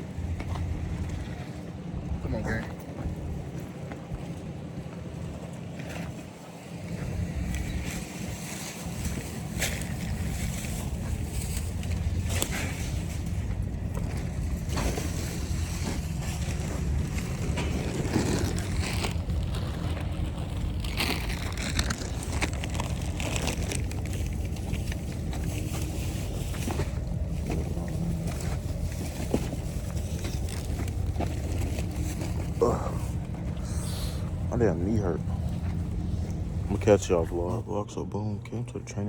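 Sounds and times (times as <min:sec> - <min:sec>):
car interior rumble: 0:06.9 - 0:39.0.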